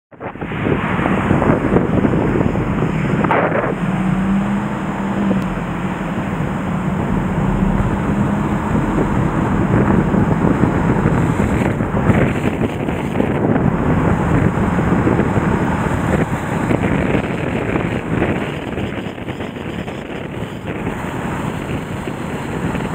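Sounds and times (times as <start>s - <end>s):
wind buffeting microphone: 0.1s - 22.9s
flooded river rushing: 0.2s - 22.9s.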